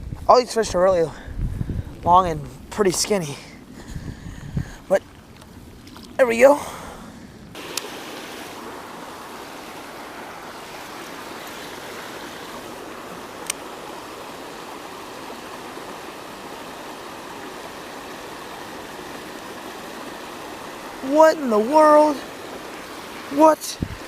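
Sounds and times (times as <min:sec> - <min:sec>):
creek water rushing: 0:07.6 - 0:24.0.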